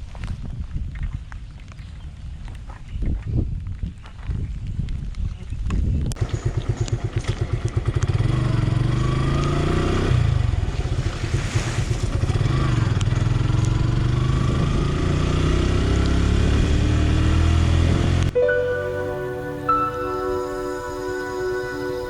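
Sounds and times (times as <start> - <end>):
motorcycle engine pulling away: 6.2 - 18.4.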